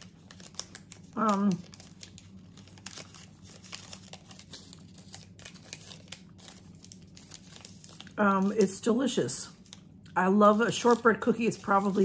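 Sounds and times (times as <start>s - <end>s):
crackly cookie chewing: 0.0s - 8.8s.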